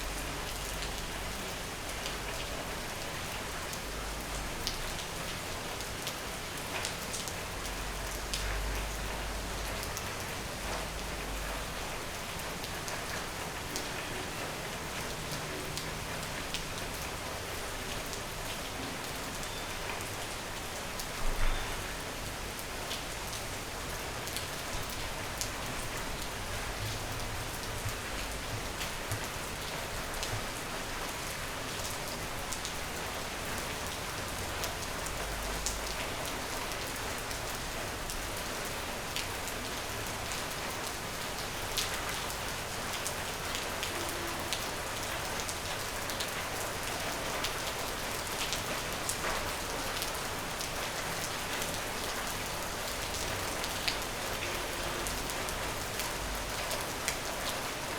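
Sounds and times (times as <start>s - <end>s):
steady rain falling: 0.0s - 57.9s.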